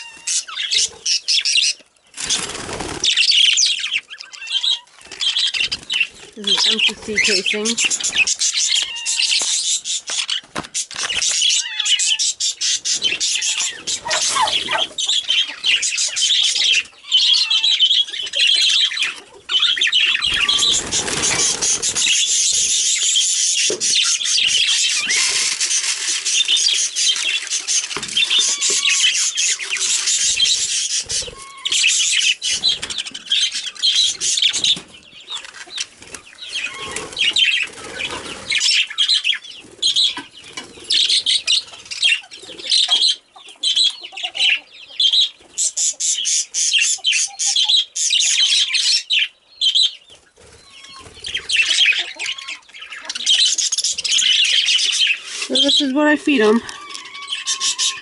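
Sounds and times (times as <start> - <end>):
budgies chattering and chirping: 0.0 - 58.0
rustling noise: 24.6 - 31.3.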